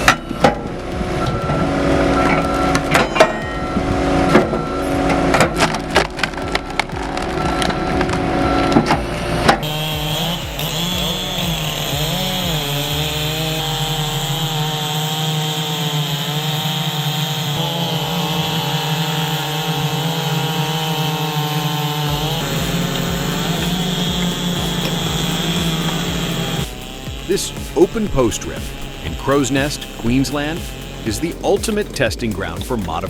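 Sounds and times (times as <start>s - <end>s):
wooden logs knocking and clattering: 0.0s - 15.6s
engine-driven saw running: 0.0s - 33.0s.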